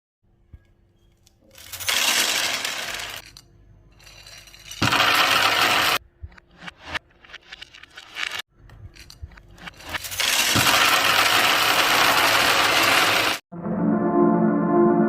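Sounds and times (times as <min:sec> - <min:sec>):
marbles rolling down track: 0:01.5 - 0:03.4, 0:04.0 - 0:06.0, 0:06.6 - 0:08.4, 0:09.0 - 0:13.4.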